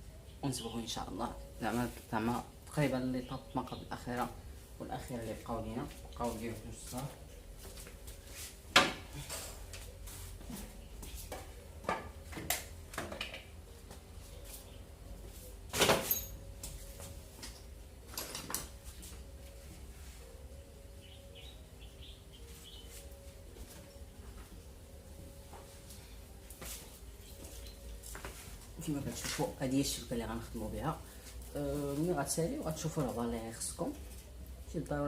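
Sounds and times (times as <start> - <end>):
objects knocking and clattering: 11.3 - 13.5.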